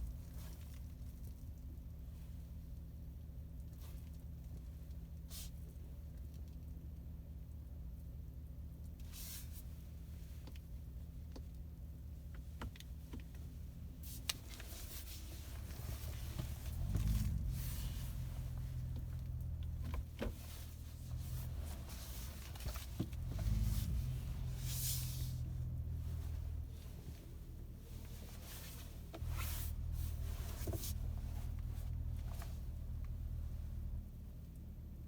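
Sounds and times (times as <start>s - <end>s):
short rustling: 14.0s - 33.8s
truck engine idling: 28.9s - 34.5s.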